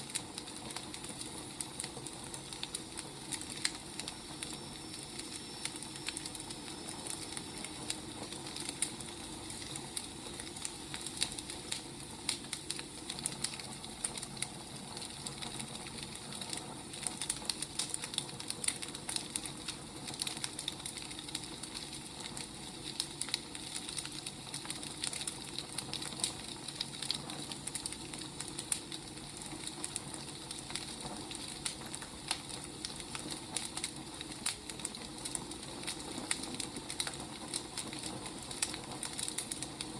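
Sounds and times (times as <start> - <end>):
firewood burning and crackling: 0.0 - 39.9.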